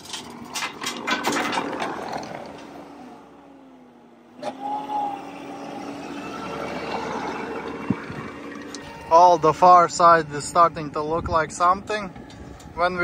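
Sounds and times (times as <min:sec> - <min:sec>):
rocks clattering against rotor: 0:00.0 - 0:02.8
machine engine running: 0:04.7 - 0:09.6.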